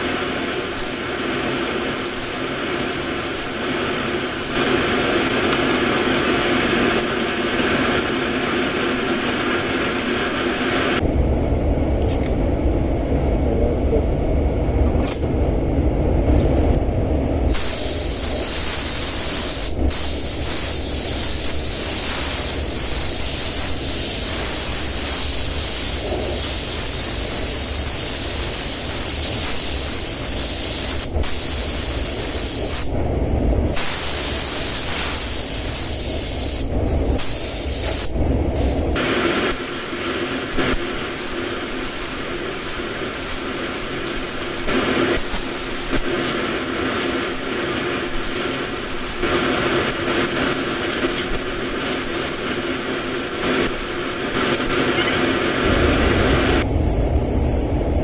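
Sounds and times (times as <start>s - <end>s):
spray gun hissing: 0.0s - 4.8s, 17.5s - 33.0s, 33.7s - 56.6s
low rumble: 11.0s - 17.6s, 55.6s - 58.0s.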